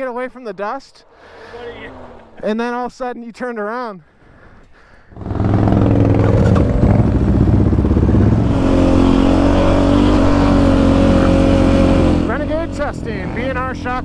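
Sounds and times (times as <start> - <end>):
quad engine revving: 5.2 - 14.0.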